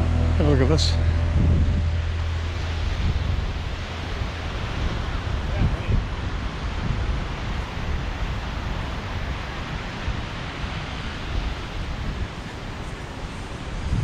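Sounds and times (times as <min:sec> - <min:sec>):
wind buffeting microphone: 0:00.0 - 0:14.0
waves breaking on beach: 0:02.0 - 0:14.0.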